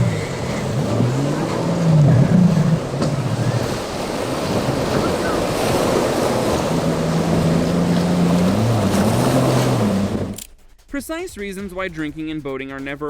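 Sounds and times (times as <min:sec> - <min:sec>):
low droning tone: 0:00.0 - 0:04.4
water rushing around boat: 0:00.0 - 0:10.5.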